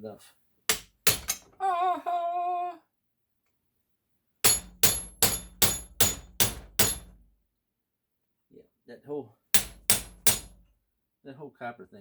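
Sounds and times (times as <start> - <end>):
hammer striking metal: 0.7 - 1.5, 4.4 - 7.2, 9.6 - 10.6.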